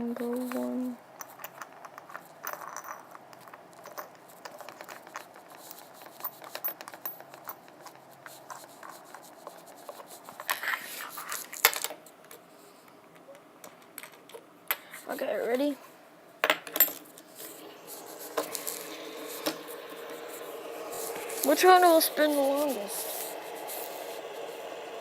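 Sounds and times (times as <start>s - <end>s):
fidget spinners clicking: 17.9s - 24.7s.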